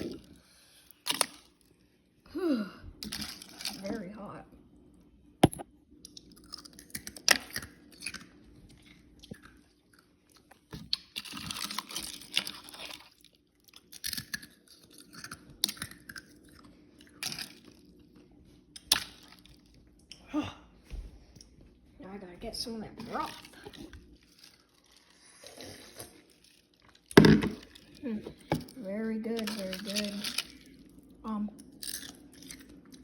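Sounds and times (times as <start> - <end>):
person chewing and eating: 5.4 - 20.7, 23.0 - 28.8, 29.4 - 33.0.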